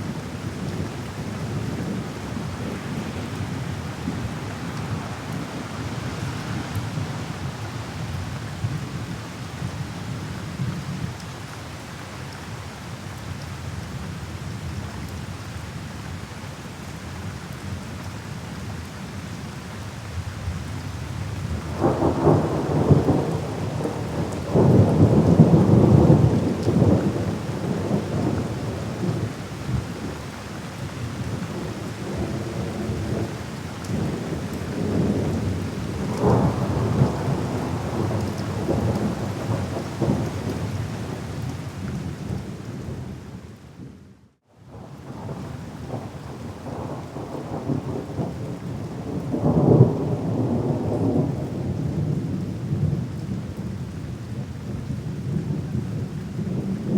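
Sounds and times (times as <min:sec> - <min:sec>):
steady rain: 0:00.0 - 0:56.9
rolling thunder: 0:21.7 - 0:30.2, 0:33.9 - 0:41.2, 0:44.7 - 0:53.1.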